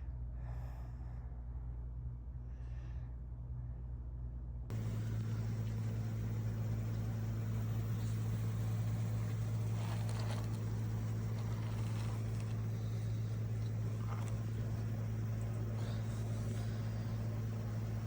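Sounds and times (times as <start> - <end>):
low mechanical hum: 0.0 - 18.0
constant rushing noise: 4.7 - 18.0.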